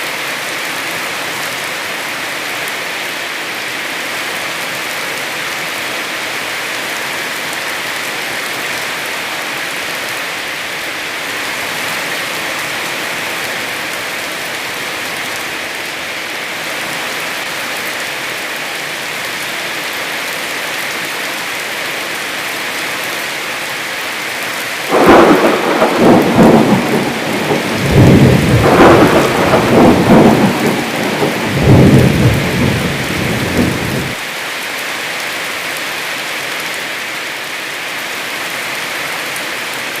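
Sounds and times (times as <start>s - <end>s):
heavy rain: 0.0s - 40.0s
thunder rumbling: 24.9s - 34.2s.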